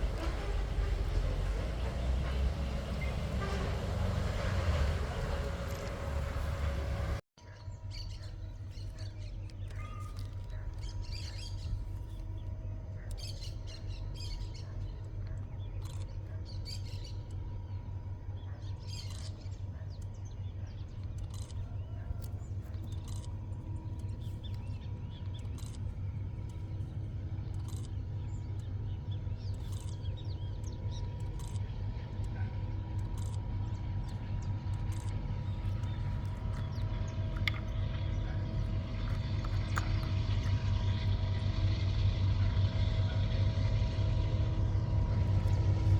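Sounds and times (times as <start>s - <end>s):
steady tones: 0.0s - 7.2s
low engine hum: 0.0s - 7.3s, 7.9s - 45.9s
birds chirping: 0.0s - 45.9s.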